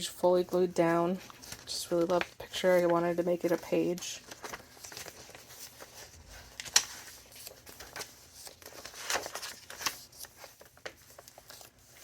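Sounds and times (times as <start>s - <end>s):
thick paper pages rustling: 0.0s - 12.0s
paper snap: 6.5s - 11.0s.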